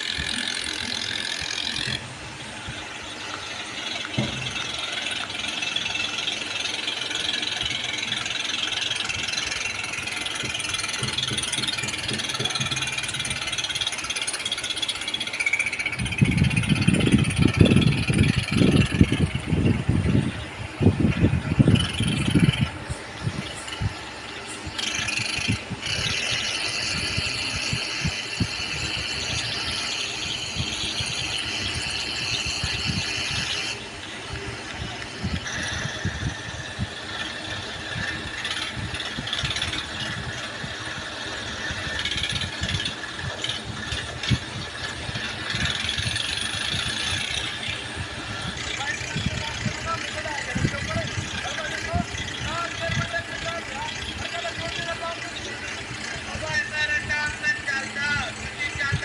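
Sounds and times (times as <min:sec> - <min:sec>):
metallic rattling: 0:00.0 - 0:19.7
diesel tractor engine running: 0:00.0 - 0:59.0.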